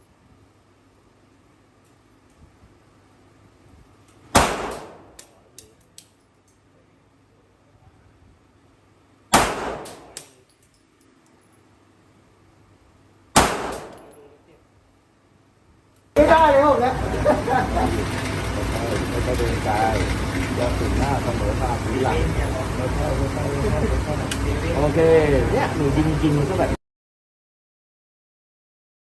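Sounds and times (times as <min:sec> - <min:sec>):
small sharp clinks: 0:04.0 - 0:06.7, 0:09.8 - 0:11.7, 0:13.7 - 0:14.4
gunshot: 0:04.3 - 0:05.2, 0:09.3 - 0:10.2, 0:13.4 - 0:14.2.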